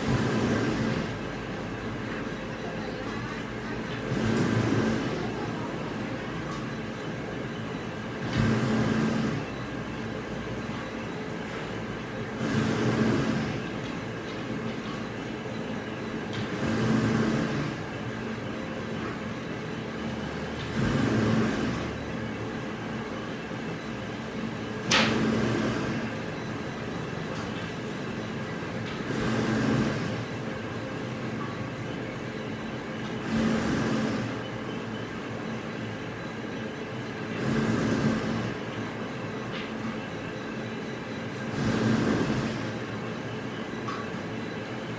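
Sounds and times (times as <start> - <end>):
factory machinery humming: 0.0 - 44.9
surge of machine noise: 3.4 - 6.5, 8.1 - 10.3, 12.3 - 14.7, 16.0 - 19.0, 19.8 - 30.7, 32.8 - 35.0, 37.2 - 39.5, 41.3 - 43.0.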